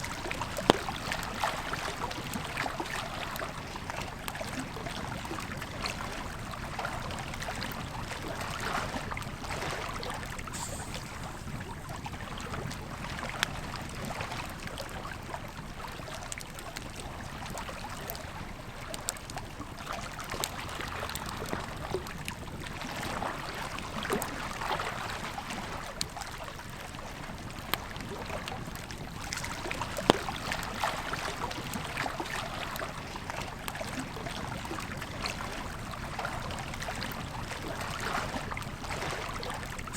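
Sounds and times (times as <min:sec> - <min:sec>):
flowing river: 0:00.0 - 0:39.9
campfire crackling: 0:10.3 - 0:13.6, 0:27.2 - 0:32.8
fire pops: 0:10.5 - 0:12.2.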